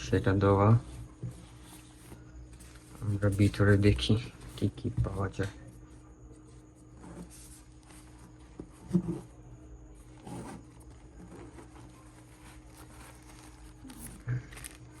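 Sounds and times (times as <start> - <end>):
low steady hum: 0.0 - 15.0
bag rustling: 6.6 - 15.0.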